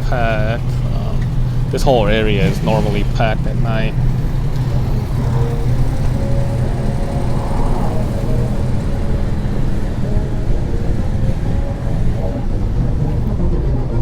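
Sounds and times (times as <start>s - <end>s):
city street noise: 0.0s - 14.0s
engine humming: 0.0s - 14.0s.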